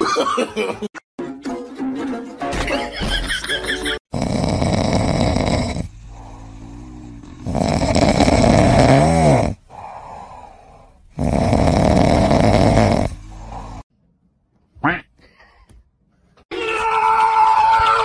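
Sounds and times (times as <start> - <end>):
cat snoring: 4.1 - 13.8.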